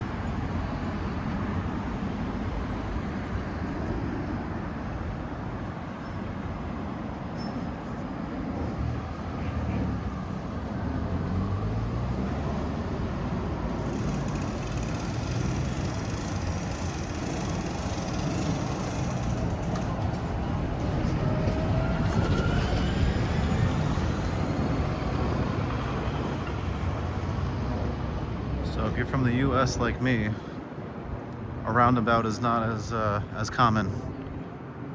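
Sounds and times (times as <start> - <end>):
road traffic: 0.0 - 34.9
vehicle engine pulling away: 8.6 - 28.3.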